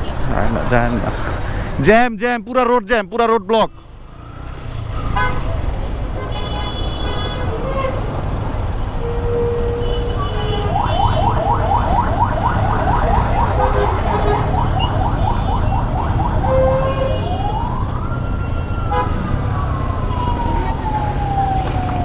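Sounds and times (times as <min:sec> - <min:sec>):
low rumble of traffic: 0:00.0 - 0:22.0
siren yelping and wailing: 0:10.6 - 0:22.0.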